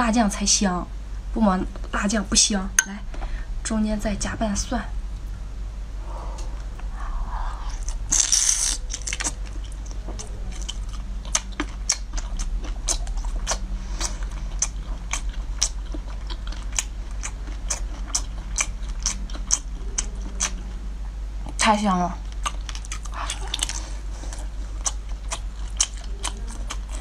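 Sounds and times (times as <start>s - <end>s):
steady low hum: 0.0s - 27.0s
person biting food: 7.7s - 15.2s.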